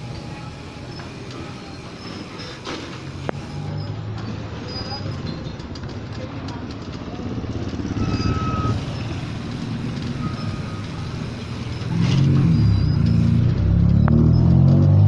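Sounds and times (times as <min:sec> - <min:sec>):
motorcycle engine running: 0:05.5 - 0:14.2
faint high beeps: 0:07.9 - 0:09.3, 0:10.0 - 0:14.6.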